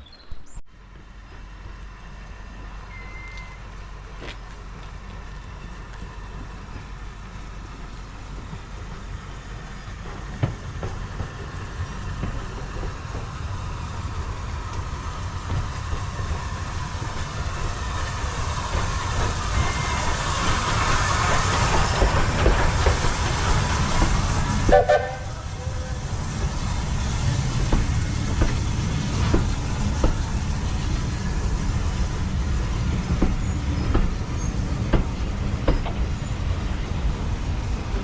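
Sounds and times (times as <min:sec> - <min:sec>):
steam train running: 0:00.8 - 0:38.0
wheels clicking over rail joints: 0:07.6 - 0:36.5.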